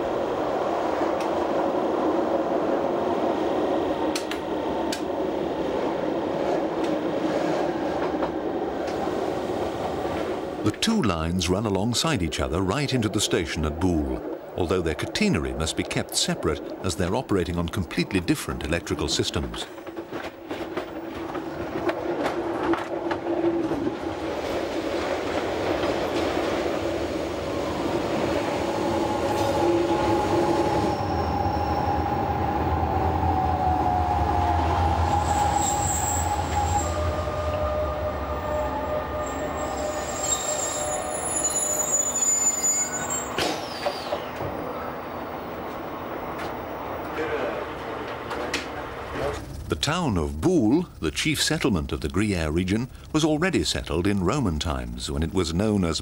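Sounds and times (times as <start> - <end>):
train running gear rumble: 0.0 - 55.3
high wheel squeal: 28.8 - 32.4, 35.0 - 44.5.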